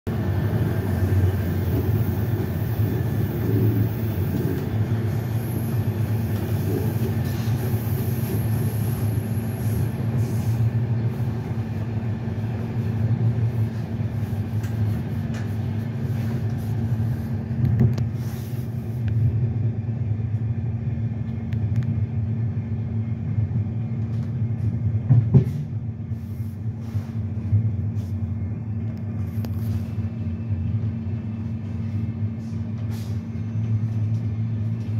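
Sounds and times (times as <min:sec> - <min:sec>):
train wheels rumbling on rails: 0:00.1 - 0:34.9.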